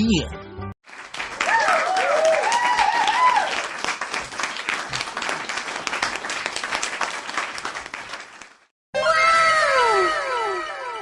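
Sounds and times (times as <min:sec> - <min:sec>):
crowd applauding: 0:00.8 - 0:08.7.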